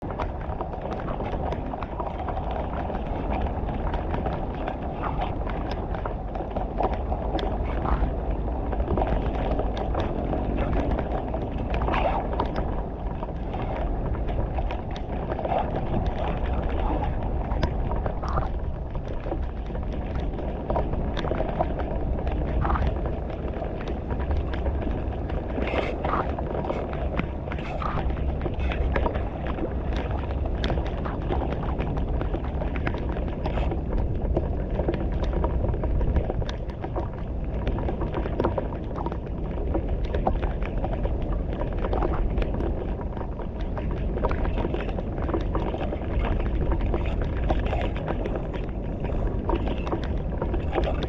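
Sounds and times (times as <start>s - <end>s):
flood water rushing through culvert: 9.6s - 12.7s.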